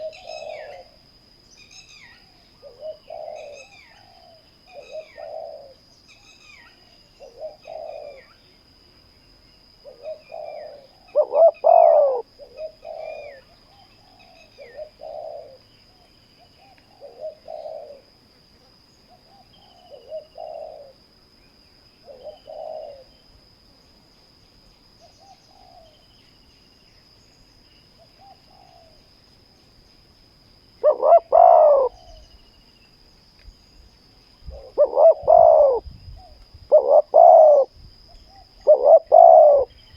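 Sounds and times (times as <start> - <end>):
doves cooing: 0.0 - 1.0, 2.0 - 5.9, 7.2 - 8.4, 9.8 - 15.7, 16.6 - 18.2, 19.1 - 21.0, 22.0 - 23.1, 25.1 - 26.0, 28.1 - 29.0, 30.8 - 32.4, 34.5 - 39.8.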